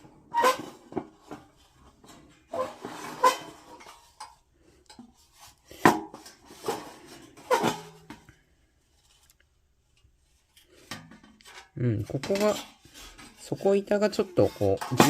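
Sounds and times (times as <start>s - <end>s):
metal plates clanking: 14.1s - 15.0s.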